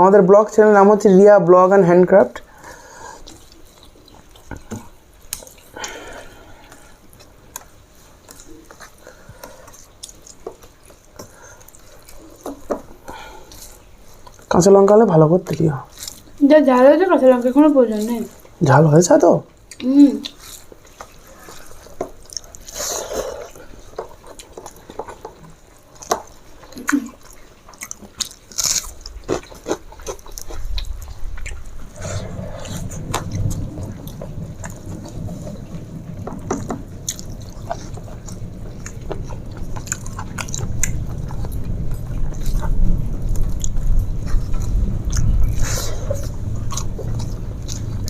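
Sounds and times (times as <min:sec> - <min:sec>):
people eating by hand: 0:00.0 - 0:48.0
low rumble: 0:30.7 - 0:48.0.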